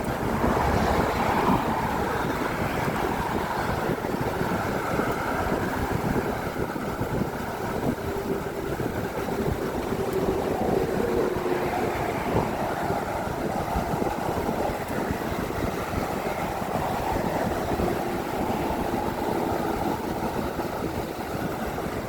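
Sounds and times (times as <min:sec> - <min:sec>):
road traffic on a bridge: 0:00.0 - 0:22.0.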